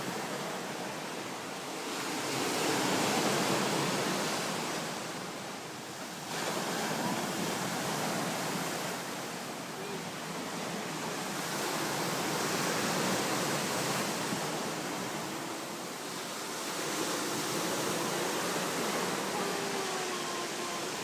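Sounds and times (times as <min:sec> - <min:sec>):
waves breaking: 0:00.0 - 0:21.0.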